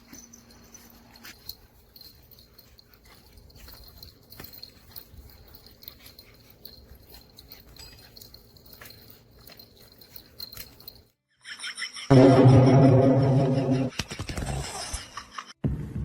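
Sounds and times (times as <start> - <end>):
dog clicks and scuffles: 0.1 - 11.1.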